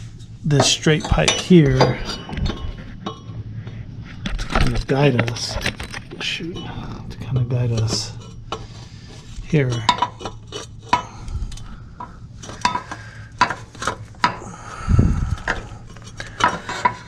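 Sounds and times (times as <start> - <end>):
metal pipes clinking and scraping: 0.0 - 17.0.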